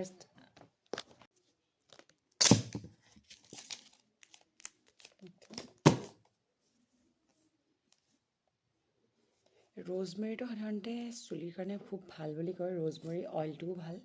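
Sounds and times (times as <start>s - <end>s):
packaging crinkling and tearing: 1.9s - 5.7s.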